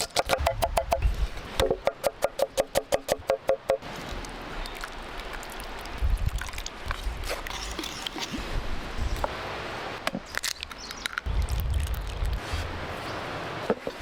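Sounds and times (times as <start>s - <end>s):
low rumbling thumps: 0.4s - 1.8s.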